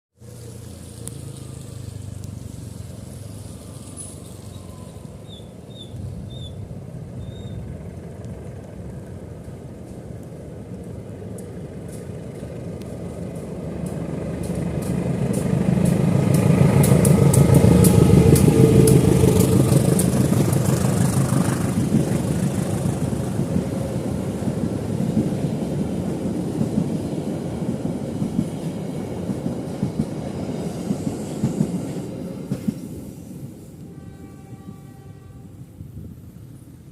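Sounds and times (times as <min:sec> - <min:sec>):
vehicle engine running: 0:13.1 - 0:23.3.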